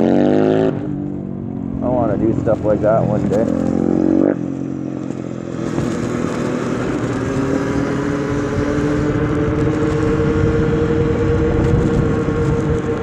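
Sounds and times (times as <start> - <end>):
tyre noise: 0.0 - 13.0
wind rushing: 0.7 - 13.0
electric bike motor whine: 0.9 - 13.0.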